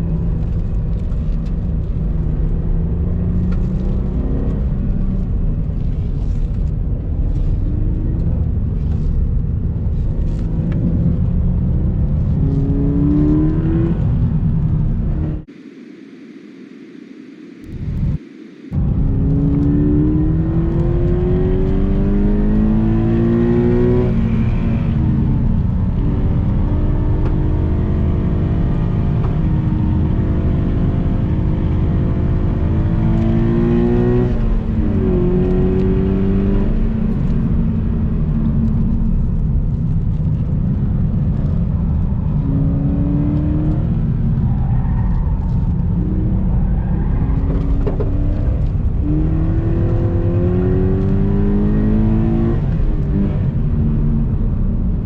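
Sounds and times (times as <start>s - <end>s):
road and wind rumble: 0.0s - 55.0s
car engine revving hard: 49.0s - 53.4s.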